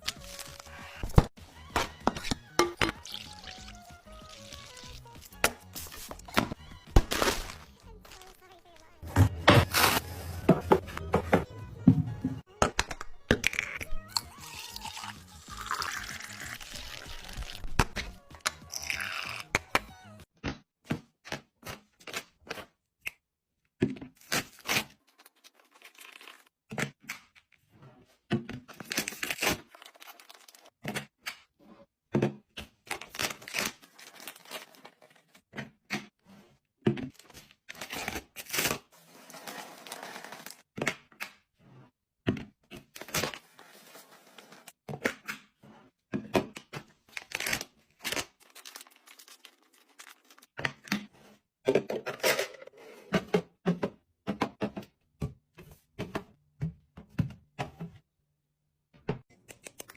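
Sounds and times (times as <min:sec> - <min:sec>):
packaging rustling and tearing: 0:05.8 - 0:08.4, 0:09.6 - 0:10.2, 0:33.0 - 0:35.1, 0:47.1 - 0:50.5.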